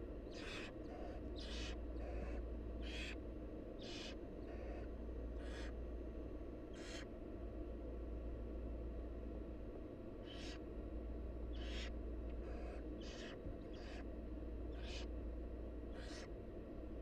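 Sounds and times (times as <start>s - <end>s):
steady low hum: 0.0s - 17.0s
owl nestlings hissing: 0.3s - 3.2s, 3.8s - 4.8s, 5.4s - 5.7s, 10.3s - 10.6s, 11.5s - 14.1s, 14.7s - 15.1s, 15.9s - 16.3s.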